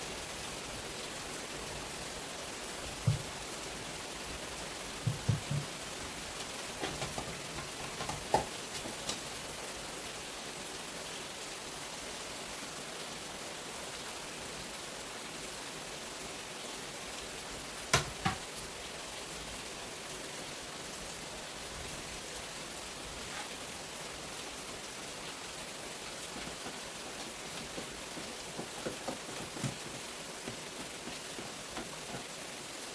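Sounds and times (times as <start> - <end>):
steady rain falling: 0.0 - 32.9
sharp knocks: 5.0 - 5.8.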